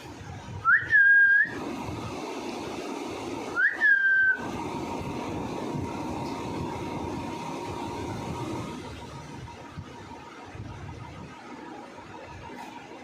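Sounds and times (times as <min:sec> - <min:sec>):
rising whistles: 0:00.6 - 0:01.6, 0:03.5 - 0:04.6.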